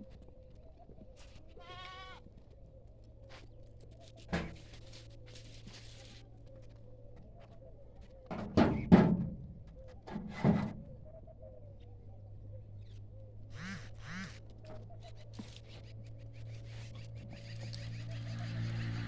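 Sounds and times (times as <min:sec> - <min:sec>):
goats bleating: 0:01.6 - 0:02.2.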